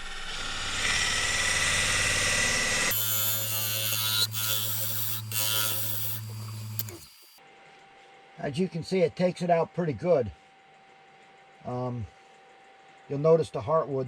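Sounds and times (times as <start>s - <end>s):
wood lathe humming: 0.0s - 7.4s
lathe tool chattering: 0.4s - 7.4s
gouge scraping wood: 2.9s - 7.4s.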